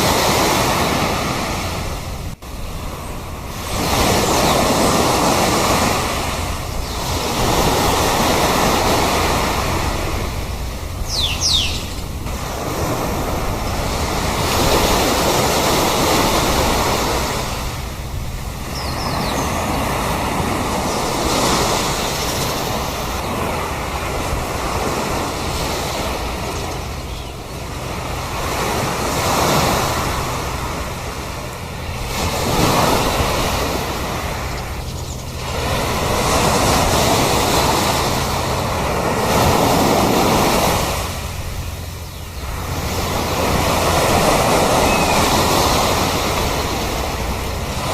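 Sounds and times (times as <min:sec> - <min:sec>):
sea surf washing onto shore: 0:00.0 - 0:47.9
short high bird call: 0:11.1 - 0:12.0.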